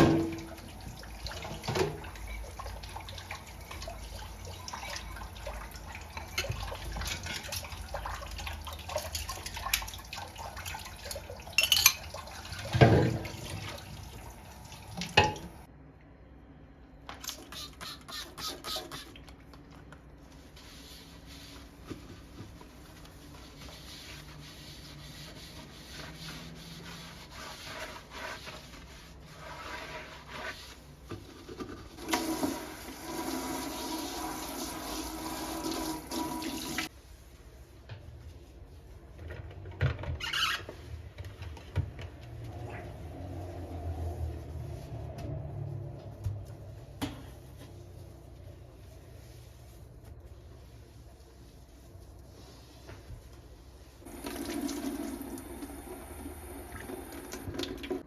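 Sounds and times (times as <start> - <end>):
tap water running into sink: 0.0 - 15.7, 32.0 - 36.9, 54.1 - 58.0.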